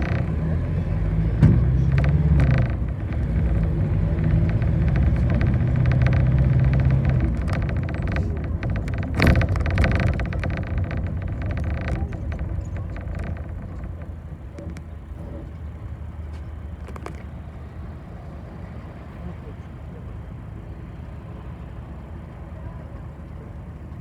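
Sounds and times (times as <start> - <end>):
rattling: 0.0 - 15.7
bus engine and road noise: 0.0 - 24.0.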